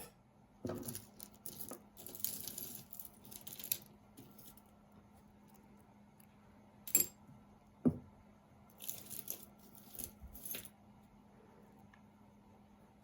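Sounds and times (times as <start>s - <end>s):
jewelry clinking: 0.0s - 4.7s, 6.8s - 7.2s, 8.7s - 10.8s.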